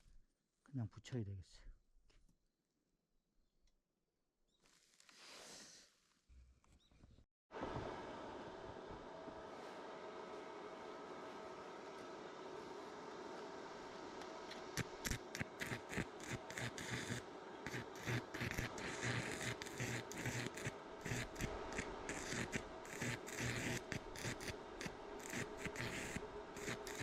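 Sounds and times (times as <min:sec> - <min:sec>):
steady hum: 0:07.6 - 0:27.0
welding arc crackling: 0:14.5 - 0:27.0.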